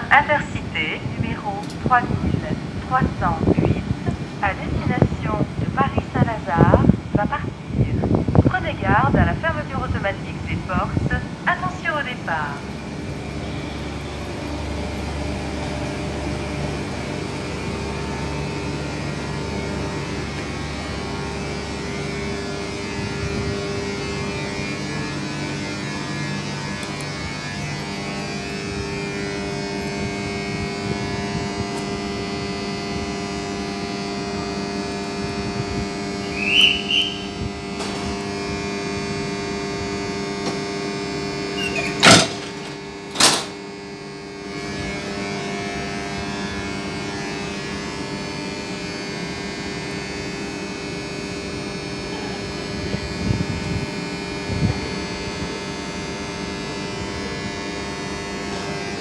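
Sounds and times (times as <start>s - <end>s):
train humming at platform: 0.0s - 59.0s.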